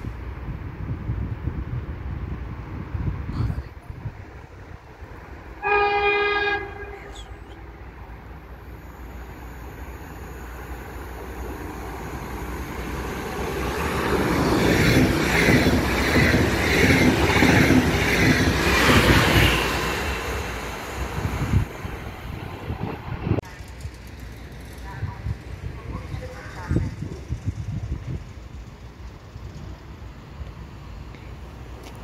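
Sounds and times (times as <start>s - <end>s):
train passing at speed: 0.0s - 31.8s
train horn blast: 5.6s - 7.3s.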